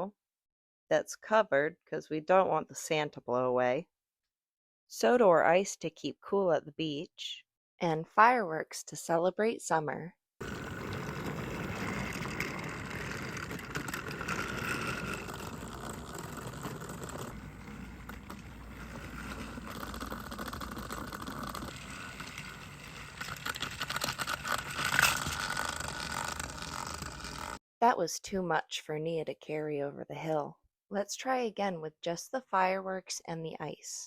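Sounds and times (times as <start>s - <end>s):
plastic wheels rattling on track: 10.4s - 27.6s
toy train motor whirring: 10.4s - 27.6s.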